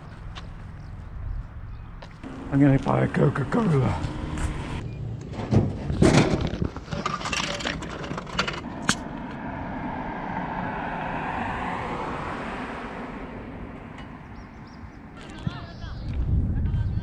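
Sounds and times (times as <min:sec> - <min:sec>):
car passing: 0:02.2 - 0:06.0, 0:08.6 - 0:15.2.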